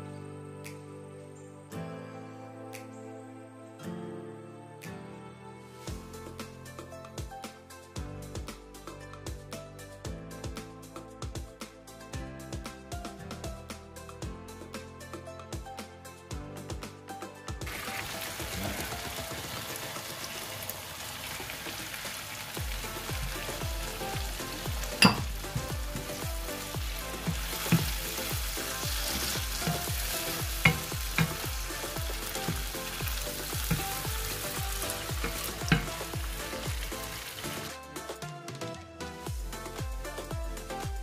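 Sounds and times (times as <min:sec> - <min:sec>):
background music with steady beat: 0:00.0 - 0:20.5, 0:22.4 - 0:41.0
sauce sizzling in a frying pan: 0:17.7 - 0:37.8.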